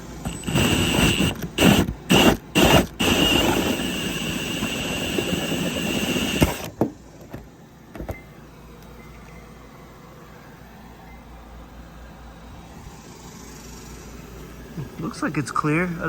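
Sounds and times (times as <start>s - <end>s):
cordless drill whining: 0.2s - 6.7s.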